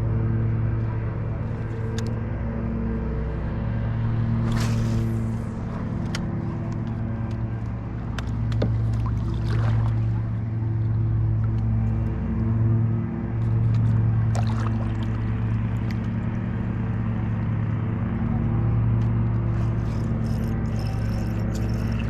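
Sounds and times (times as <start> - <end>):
boat motor running: 0.0 - 22.0.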